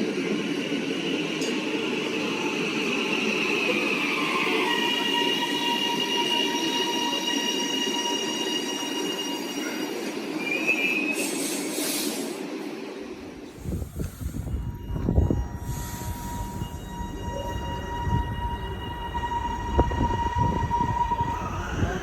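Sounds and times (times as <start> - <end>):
train wheels squealing: 0.0 - 12.6, 13.5 - 22.0
train running gear rumble: 13.2 - 22.0.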